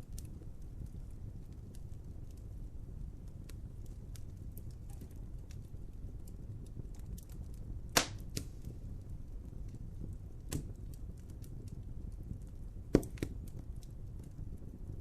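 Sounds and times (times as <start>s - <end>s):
low rumble of flames: 0.0s - 15.0s
wood fire crackling: 0.0s - 15.0s
loud sharp fire pops: 7.8s - 8.8s, 10.4s - 11.6s, 12.8s - 13.7s.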